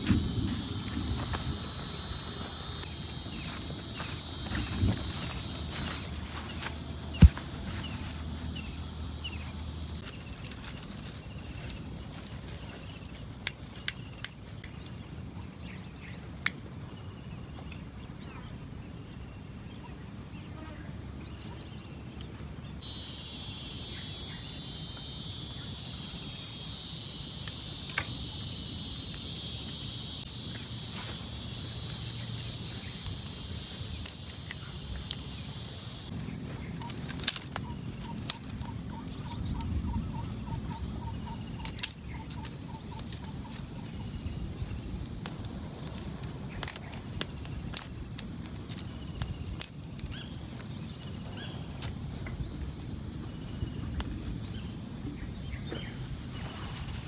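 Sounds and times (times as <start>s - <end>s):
high insect-like drone: 0.0s - 12.8s, 22.8s - 49.7s
sharp clicks and crackles: 36.1s - 39.8s.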